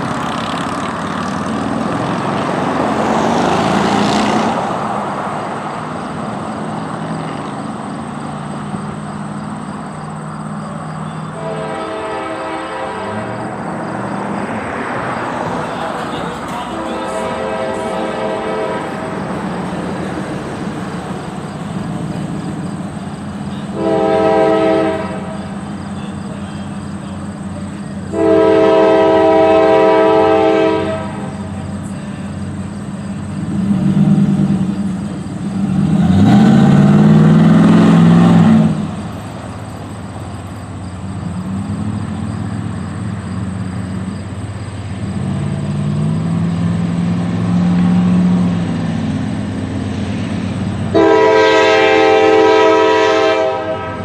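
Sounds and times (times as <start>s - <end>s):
diesel locomotive engines: 0.0s - 54.0s
train air horn blasts: 11.3s - 13.5s, 16.2s - 19.2s, 23.5s - 26.7s, 28.1s - 31.5s, 50.9s - 54.0s.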